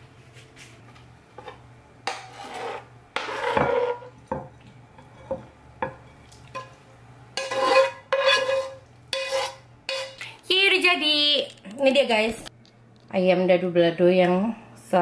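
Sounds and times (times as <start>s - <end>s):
metal spatula scraping frying pan: 1.4s - 4.2s, 7.4s - 10.2s.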